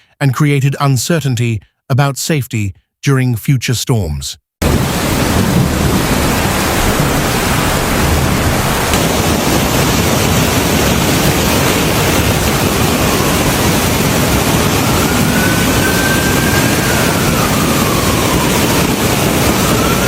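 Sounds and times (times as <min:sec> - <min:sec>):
flood water rushing: 0:04.6 - 0:20.0.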